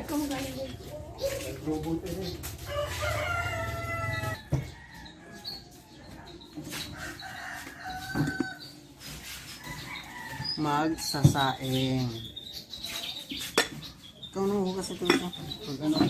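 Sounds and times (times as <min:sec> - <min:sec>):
rooster crowing: 0:02.6 - 0:05.4.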